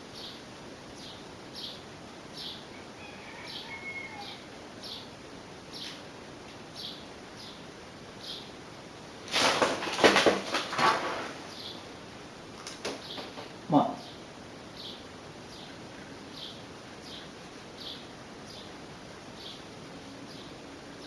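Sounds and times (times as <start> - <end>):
small bird chirping: 0.1 - 0.4, 3.4 - 5.1, 8.2 - 8.5, 14.0 - 18.8, 19.4 - 20.6
loud clattering knocks: 9.3 - 11.4, 12.7 - 13.6.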